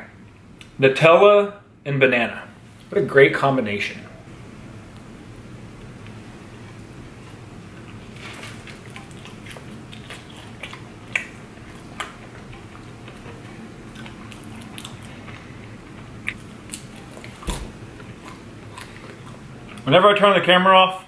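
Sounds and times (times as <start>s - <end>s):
man chewing close to microphone: 5.8s - 19.9s.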